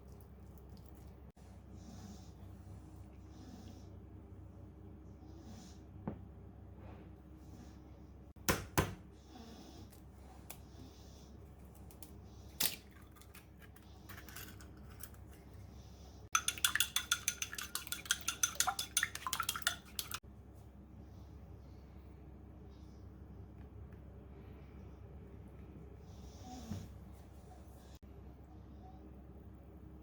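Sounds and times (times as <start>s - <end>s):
utensil clinking against mug: 16.3s - 20.2s.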